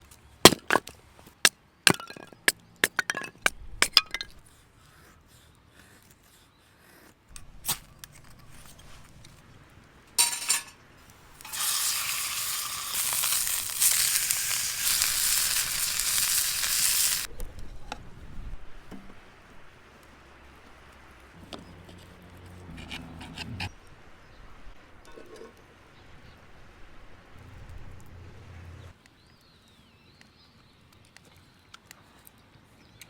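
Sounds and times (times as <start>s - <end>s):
clinks and knocks: 10.2s - 10.8s
steak sizzling loudly: 10.2s - 17.3s.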